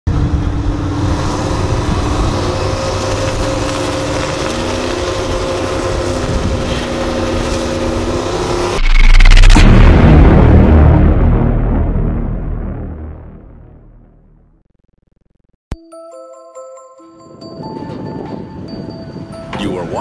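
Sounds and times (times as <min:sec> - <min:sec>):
drag car engines running: 0:00.1 - 0:08.8
deep boom: 0:08.8 - 0:15.2.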